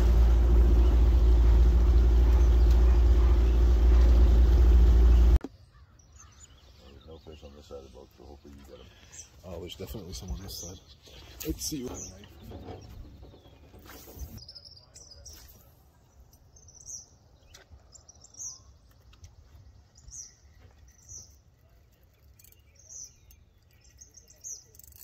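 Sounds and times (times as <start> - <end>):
faint low rumble: 0.0 - 5.4
small bird chirping: 0.6 - 25.0.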